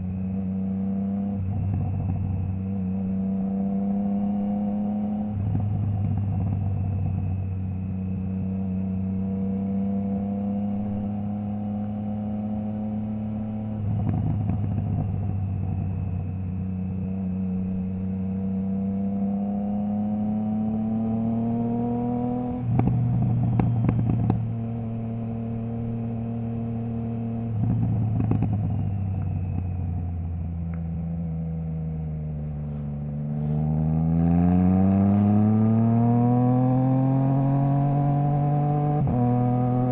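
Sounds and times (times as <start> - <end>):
motorcycle accelerating: 0.0 - 39.9
motorcycle engine cruising: 0.0 - 39.9
exhaust crackle: 22.5 - 25.0, 27.4 - 33.8.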